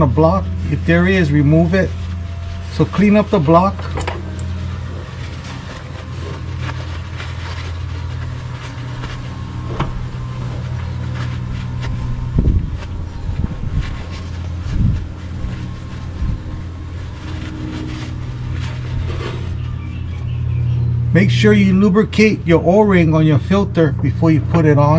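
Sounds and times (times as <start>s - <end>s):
low mechanical hum: 0.0s - 24.9s
dull thumps: 3.8s - 16.6s.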